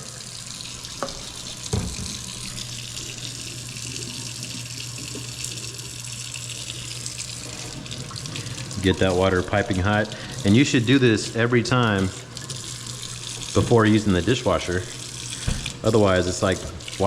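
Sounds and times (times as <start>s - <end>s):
faucet running into sink: 0.0s - 17.0s.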